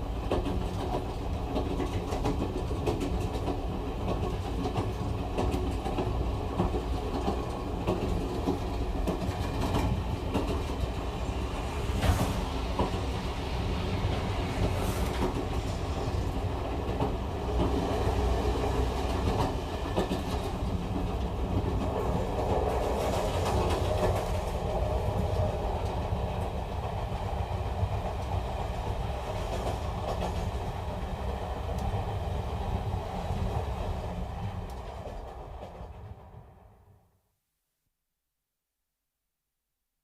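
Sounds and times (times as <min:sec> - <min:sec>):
train wheels clattering: 0:00.0 - 0:31.0.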